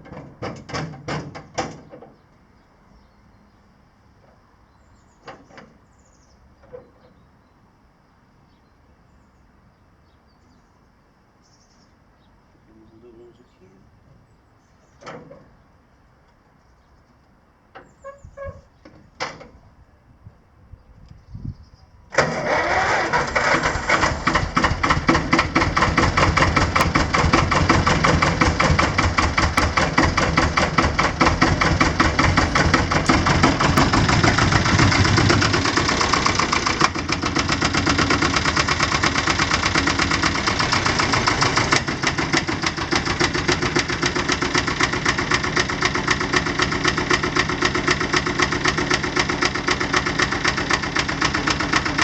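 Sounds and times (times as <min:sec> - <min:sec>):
tractor diesel engine knocking: 0:22.1 - 0:52.0.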